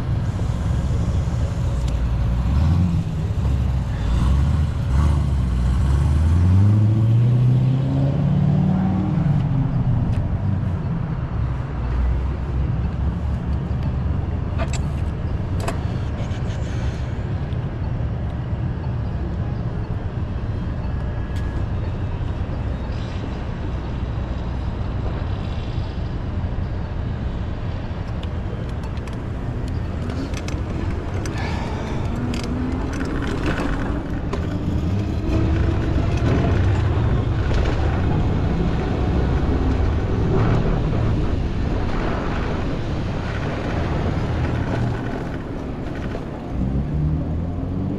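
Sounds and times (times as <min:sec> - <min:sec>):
vehicle engine accelerating: 0:00.0 - 0:15.5, 0:28.2 - 0:47.9
road noise rumble: 0:00.0 - 0:47.9.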